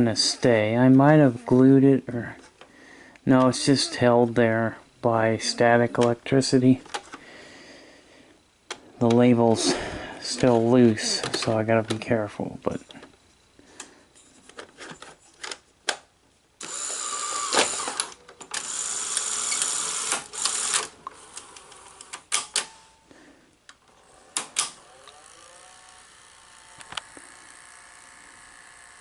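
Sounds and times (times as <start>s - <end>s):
tape deck mechanism running: 16.6s - 22.8s, 23.8s - 29.0s.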